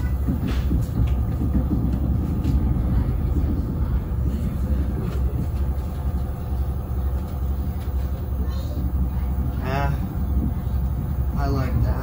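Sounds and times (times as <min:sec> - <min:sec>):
train rumbling along track: 0:00.0 - 0:12.0.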